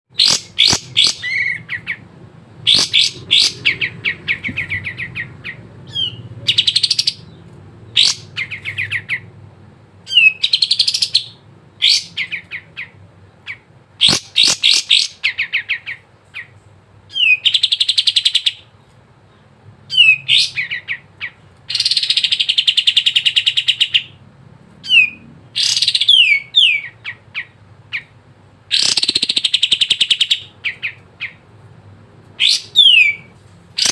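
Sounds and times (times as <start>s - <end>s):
bird singing chattering trills: 0.2s - 9.3s, 24.8s - 31.4s, 32.4s - 33.9s.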